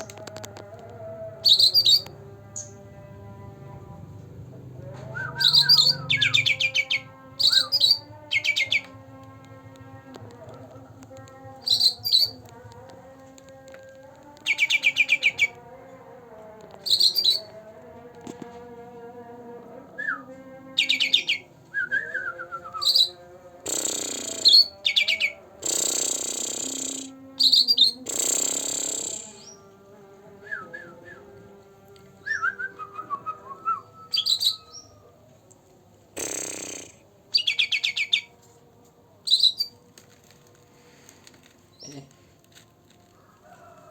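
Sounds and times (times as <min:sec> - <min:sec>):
harsh rasping bird calls: 0:05.4 - 0:08.9, 0:11.6 - 0:12.4
songbird chirping trills: 0:10.8 - 0:12.8, 0:16.8 - 0:17.6.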